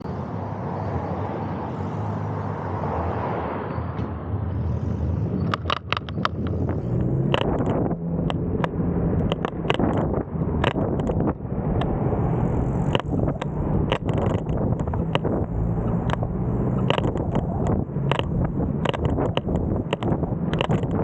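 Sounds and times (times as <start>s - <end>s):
wind rumble while riding: 3.9s - 21.0s
sharp clicks and knocks: 5.4s - 21.0s.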